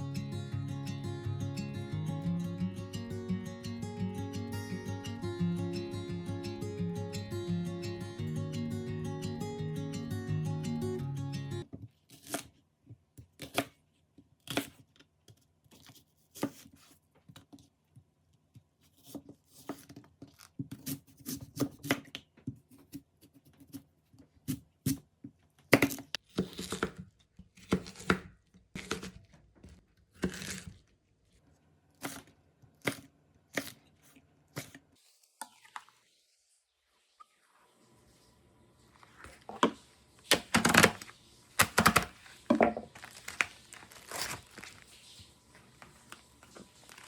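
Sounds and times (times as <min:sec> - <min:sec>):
clicks taps and rustles: 0:39.2 - 0:47.0.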